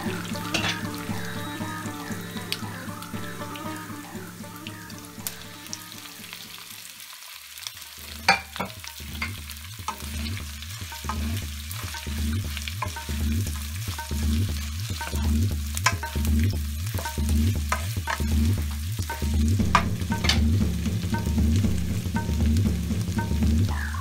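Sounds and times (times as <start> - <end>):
background music with bass: 0.0 - 6.8, 8.8 - 24.0
oil sizzling in a pan: 0.0 - 24.0
spatula knocking on pan: 8.3 - 10.2, 10.8 - 23.5.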